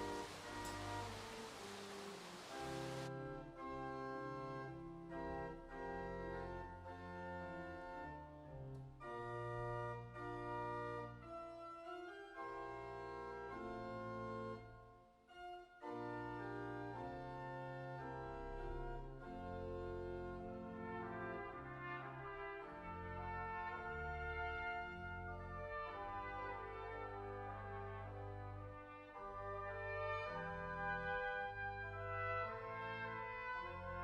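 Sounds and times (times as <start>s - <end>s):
organ playing sustained chords: 0.0s - 5.1s.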